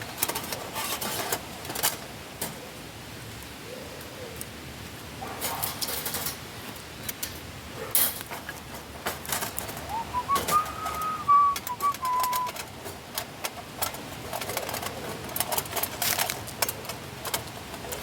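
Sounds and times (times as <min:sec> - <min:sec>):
whistled note: 0:09.9 - 0:12.5.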